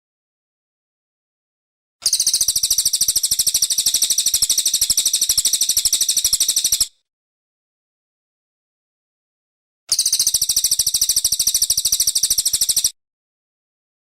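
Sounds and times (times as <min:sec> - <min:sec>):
bird singing fast high trill: 0:02.0 - 0:07.0, 0:09.9 - 0:13.0.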